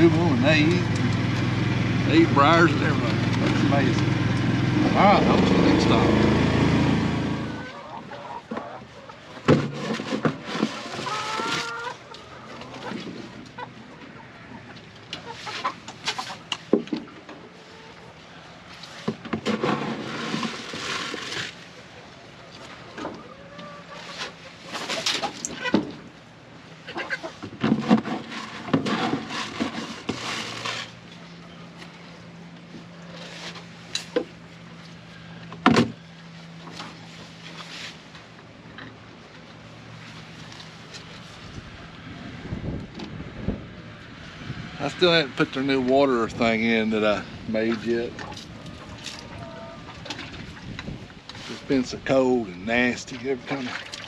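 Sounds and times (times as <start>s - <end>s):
chickens clucking: 7.2s - 19.2s, 21.0s - 26.1s, 26.8s - 27.5s, 47.8s - 51.0s.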